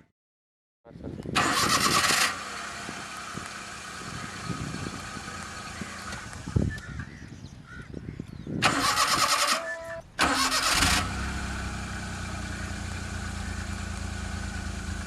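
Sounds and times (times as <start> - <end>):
car engine cranking and starting: 1.4 - 6.9, 8.6 - 15.0.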